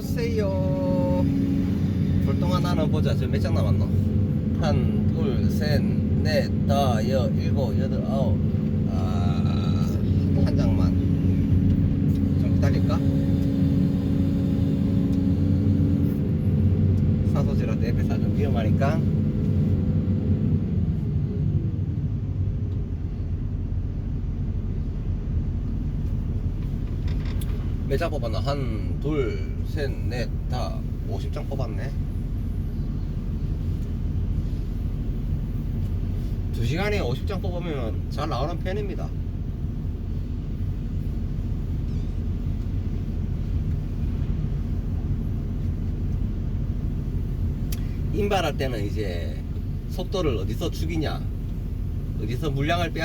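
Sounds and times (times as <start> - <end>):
excavator diesel engine rumbling: 0.0 - 38.2
faint whine: 20.9 - 53.0.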